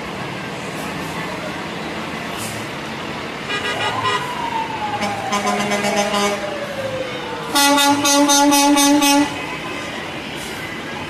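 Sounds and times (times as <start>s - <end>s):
truck air horns: 3.5s - 4.4s, 5.0s - 6.5s, 7.5s - 9.6s.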